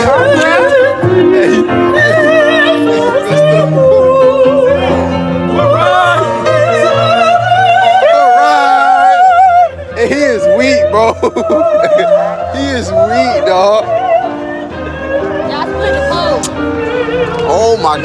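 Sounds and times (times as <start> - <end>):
woman singing operatically: 0.0 - 9.6.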